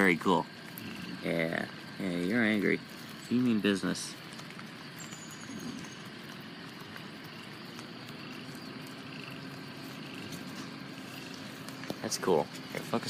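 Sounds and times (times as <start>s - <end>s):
frogs calling: 0.0s - 13.0s
steady hiss: 0.0s - 13.0s.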